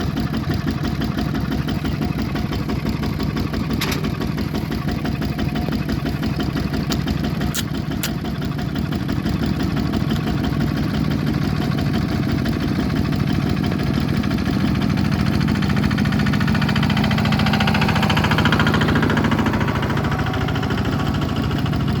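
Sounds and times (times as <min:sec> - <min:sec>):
bulldozer diesel engine running: 0:00.0 - 0:22.0
sharp clicks: 0:06.9 - 0:08.2.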